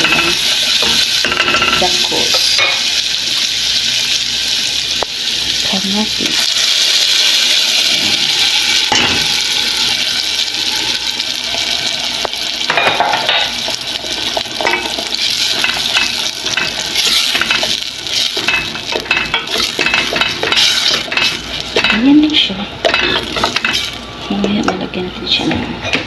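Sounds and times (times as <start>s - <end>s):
tomatoes sizzling in oil: 0.0s - 25.3s
utensil scraping and clinking pan: 14.3s - 24.0s.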